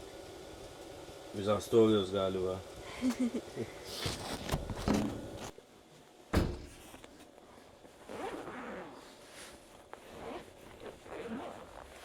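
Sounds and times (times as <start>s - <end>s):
sharp thump: 6.4s - 6.8s
rustling and handling: 6.6s - 12.0s.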